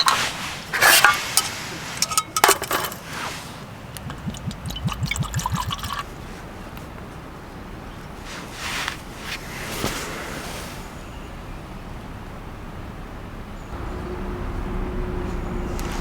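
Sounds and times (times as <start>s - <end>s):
tableware clinking: 0.0s - 3.3s
liquid being poured: 3.9s - 6.1s.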